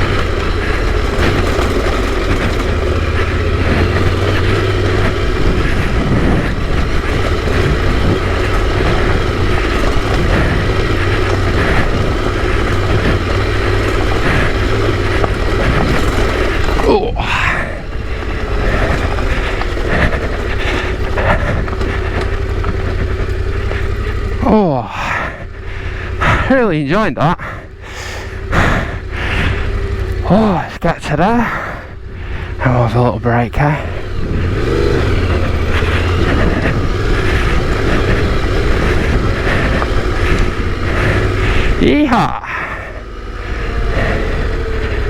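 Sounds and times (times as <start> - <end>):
motorcycle engine running: 0.0 - 45.0
wind noise on microphone: 5.4 - 8.9.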